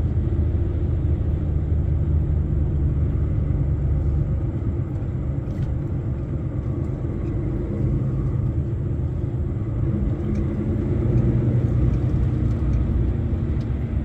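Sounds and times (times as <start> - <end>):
truck engine rumbling: 0.0 - 14.0.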